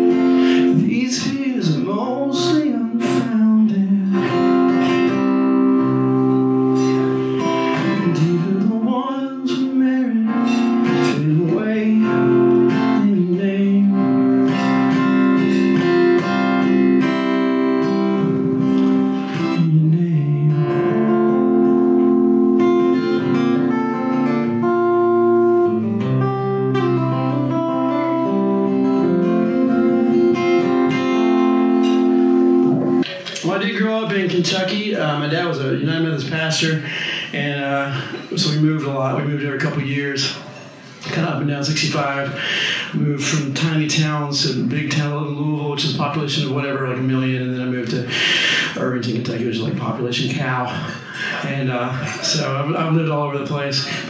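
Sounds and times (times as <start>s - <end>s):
person singing: 0.0s - 5.5s, 6.6s - 16.9s, 17.9s - 26.1s
acoustic guitar music: 0.0s - 54.0s.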